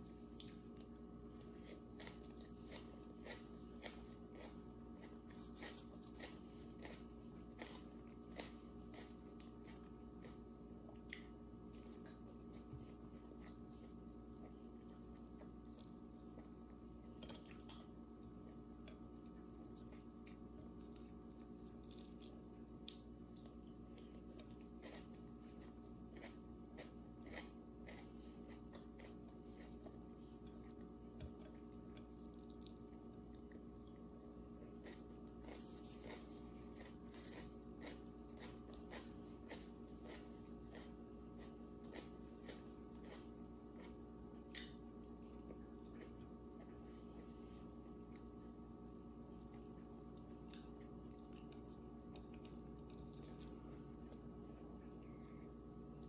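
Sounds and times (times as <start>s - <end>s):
steady low hum: 0.0s - 56.0s
person chewing and biting: 0.4s - 17.9s, 19.8s - 34.0s, 34.6s - 47.3s.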